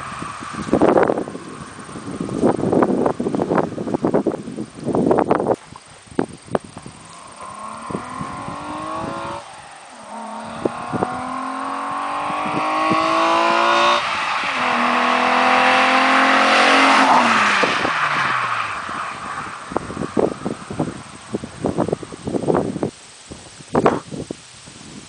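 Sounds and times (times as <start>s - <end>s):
car engine accelerating hard: 0.0s - 4.8s, 6.7s - 22.5s
car passing: 6.7s - 22.2s.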